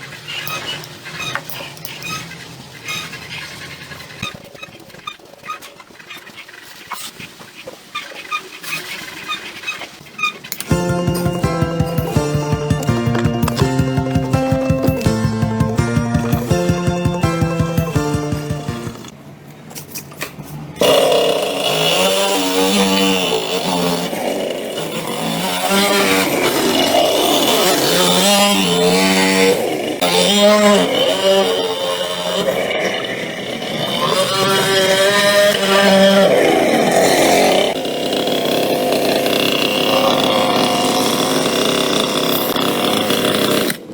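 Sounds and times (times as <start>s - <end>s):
motorcycle engine revving: 10.6s - 19.1s.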